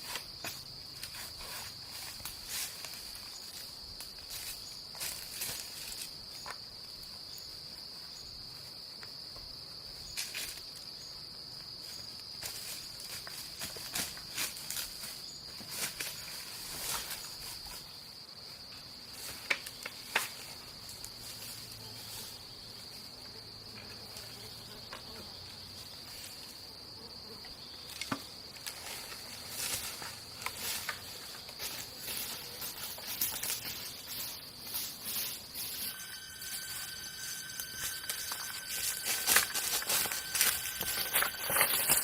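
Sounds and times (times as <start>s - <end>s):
insects droning: 0.0s - 42.0s
small rustles: 28.6s - 42.0s.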